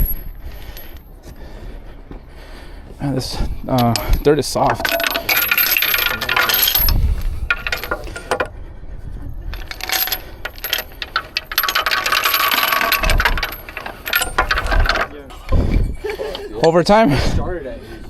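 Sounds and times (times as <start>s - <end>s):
metal chain clinking and rattling: 0.0s - 1.1s, 3.2s - 8.5s, 9.5s - 16.7s.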